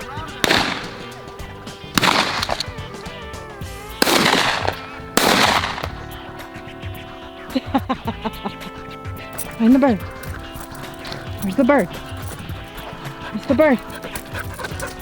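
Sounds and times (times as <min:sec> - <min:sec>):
shotgun shots: 0:00.0 - 0:06.6
background music: 0:00.0 - 0:15.0.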